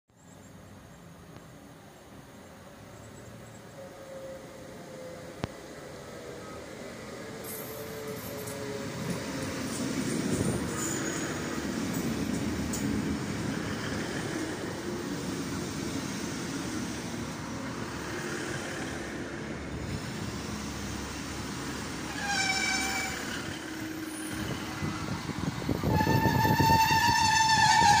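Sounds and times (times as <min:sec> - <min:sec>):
train engine and wheel rumble: 0:00.2 - 0:28.0
short train horn toot: 0:22.1 - 0:24.6, 0:25.8 - 0:28.0.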